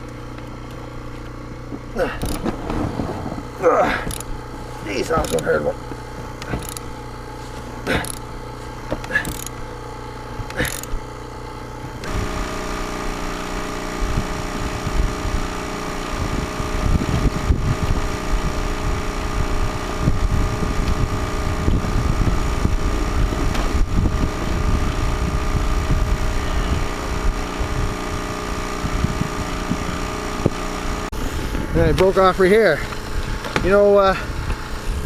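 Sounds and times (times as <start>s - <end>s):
snowmobile engine running: 0.0s - 35.0s
wind buffeting microphone: 2.5s - 3.6s, 16.2s - 35.0s.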